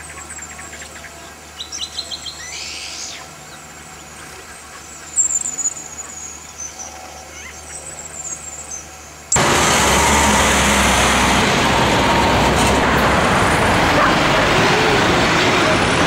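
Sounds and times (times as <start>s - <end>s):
wild birds calling and singing: 0.0s - 9.4s.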